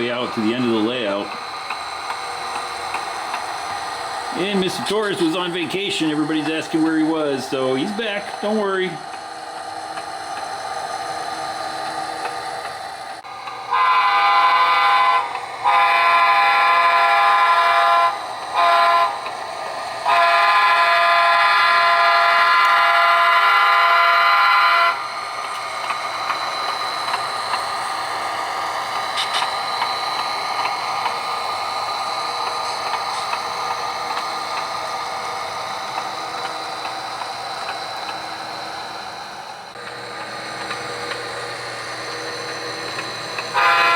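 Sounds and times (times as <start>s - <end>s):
diesel engine sound: 0.0s - 43.9s
model train chime horn: 13.7s - 19.2s, 20.0s - 25.0s, 43.5s - 43.9s.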